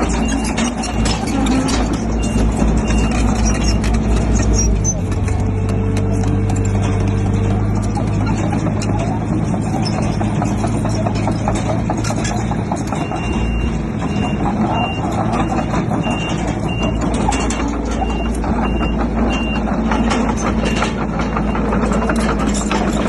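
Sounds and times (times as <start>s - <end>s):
diesel engine running: 0.0s - 23.0s
machine clatter: 0.0s - 23.0s
reversing alarm beeps: 0.1s - 3.9s, 12.9s - 22.3s.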